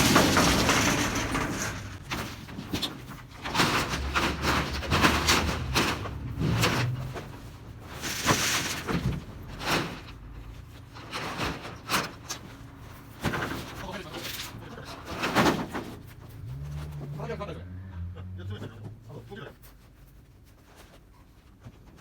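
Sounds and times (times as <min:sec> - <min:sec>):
tin roofing sheets clattering: 0:00.0 - 0:17.2.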